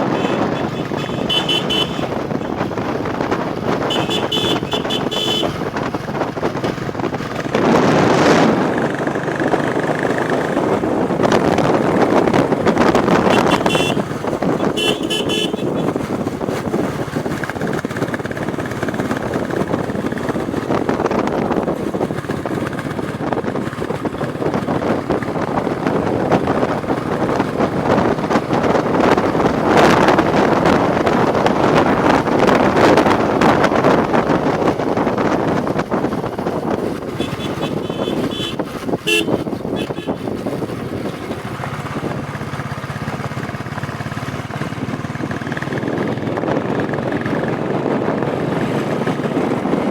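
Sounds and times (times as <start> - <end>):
vehicle horn beeps: 0.0 - 2.6, 3.8 - 5.6, 13.3 - 16.0, 37.2 - 40.2
motorcycle engine running: 0.0 - 49.9
wind and road noise: 0.0 - 49.9.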